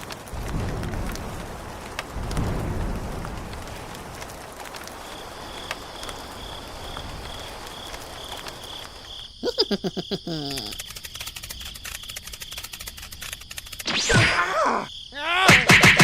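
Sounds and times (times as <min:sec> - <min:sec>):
insects chirping in a trill: 0:02.4 - 0:15.6
rapid ticking: 0:10.2 - 0:14.0.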